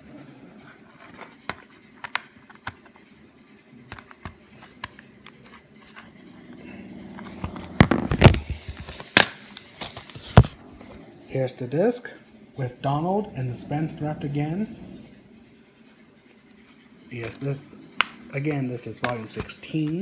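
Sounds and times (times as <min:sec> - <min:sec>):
plastic case clicking and snapping: 0:00.9 - 0:03.0, 0:03.9 - 0:06.1, 0:07.2 - 0:10.6, 0:17.2 - 0:18.2.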